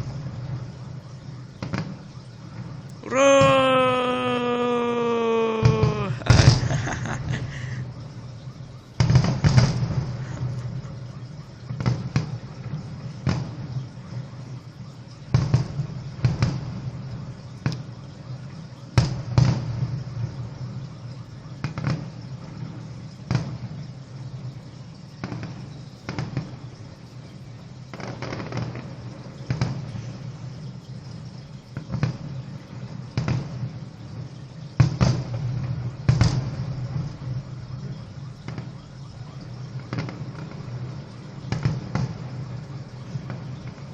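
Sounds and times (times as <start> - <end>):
fireworks bursting: 3.4 - 7.8, 9.0 - 10.8.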